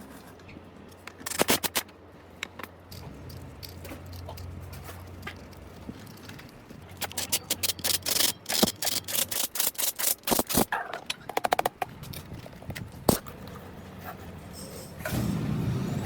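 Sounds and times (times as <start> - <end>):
rattle of clicks: 2.4 - 12.8.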